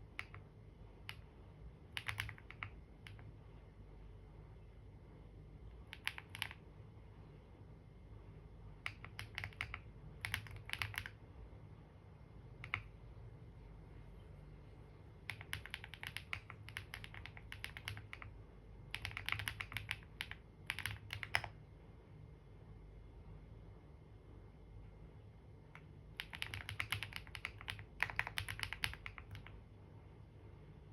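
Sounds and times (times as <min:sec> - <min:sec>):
computer keyboard typing: 0:00.0 - 0:03.3, 0:05.8 - 0:06.7, 0:08.8 - 0:11.2, 0:12.6 - 0:13.0, 0:15.2 - 0:21.6, 0:25.7 - 0:29.6.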